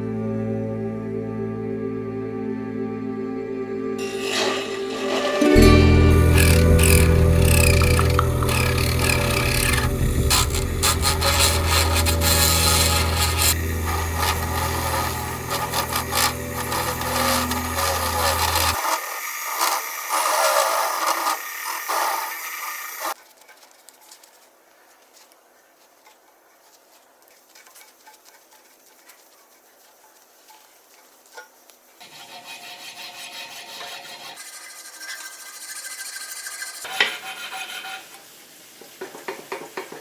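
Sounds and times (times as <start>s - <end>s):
tools scraping on metal: 4.0s - 24.4s, 30.5s - 38.2s
motor humming: 6.1s - 23.2s.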